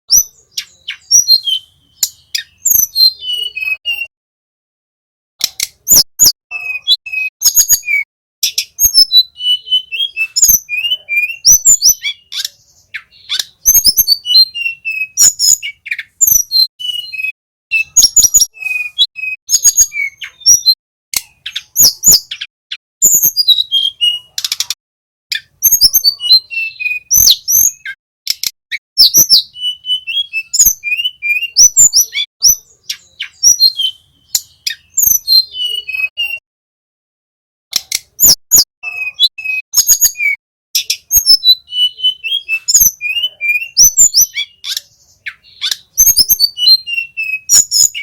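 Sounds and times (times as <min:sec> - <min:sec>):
songbird singing: 0:00.1 - 0:04.1, 0:05.4 - 0:36.4, 0:37.7 - 0:48.0
sharp clicks: 0:05.4 - 0:05.9, 0:28.3 - 0:28.6, 0:37.7 - 0:38.2.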